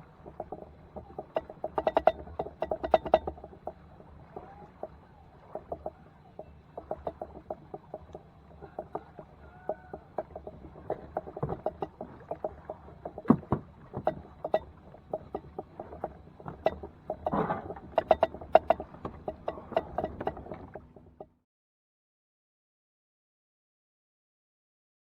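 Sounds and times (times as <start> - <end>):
hollow knocks on plastic kayak: 8.7 - 14.6.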